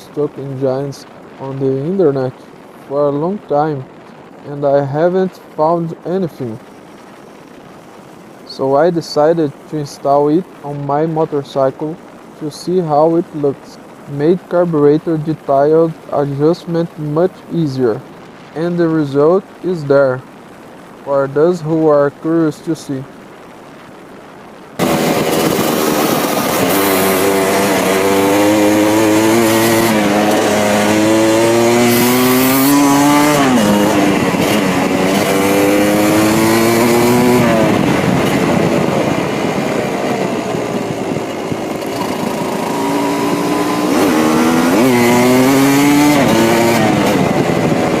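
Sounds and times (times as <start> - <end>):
two-stroke engine revving: 24.8 - 48.0.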